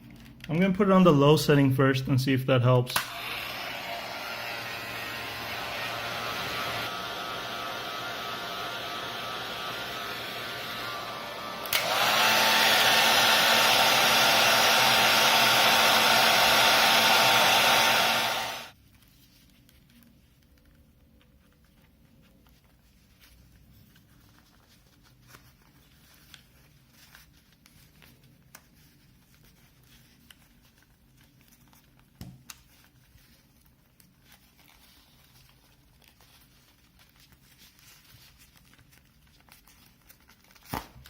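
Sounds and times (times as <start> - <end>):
faint rustling and small clicks: 0.0 - 0.6, 18.8 - 40.8.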